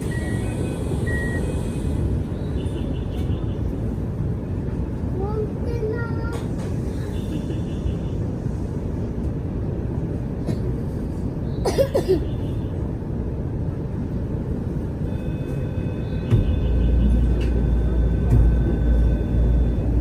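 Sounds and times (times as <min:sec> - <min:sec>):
train rumbling on rails: 0:00.0 - 0:20.0
faint whining tones: 0:15.1 - 0:20.0.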